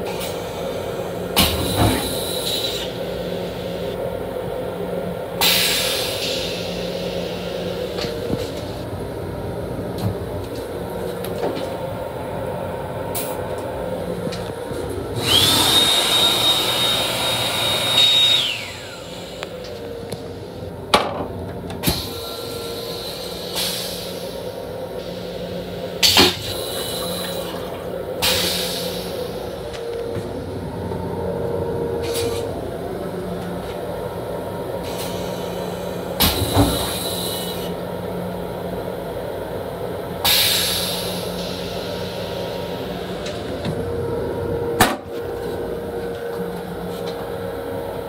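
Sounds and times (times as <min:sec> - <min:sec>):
electric railcar hum: 0:00.0 - 0:48.0
air hissing: 0:40.3 - 0:43.3.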